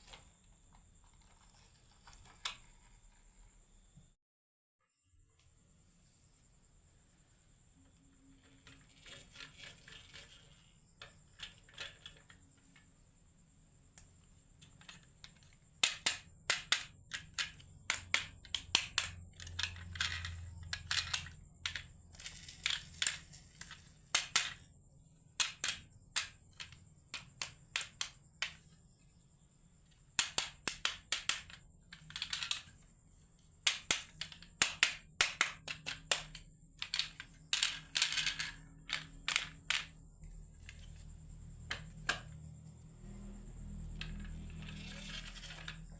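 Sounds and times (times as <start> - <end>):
marbles clacking down wooden run: 14.8 - 24.6, 30.2 - 32.7, 33.7 - 40.0.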